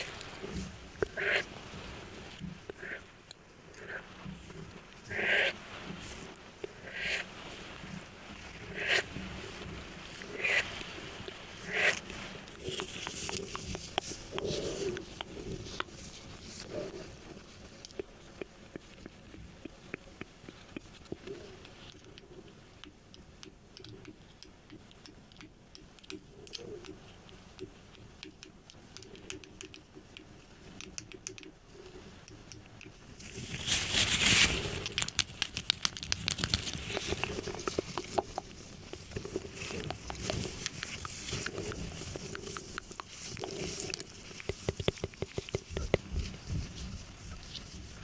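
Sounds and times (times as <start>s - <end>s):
rapid crackling and clicking: 0.0s - 48.0s
loud rustling crinkling: 7.3s - 19.6s, 33.1s - 48.0s
soft tapping and clicking: 9.7s - 33.2s, 34.4s - 46.9s.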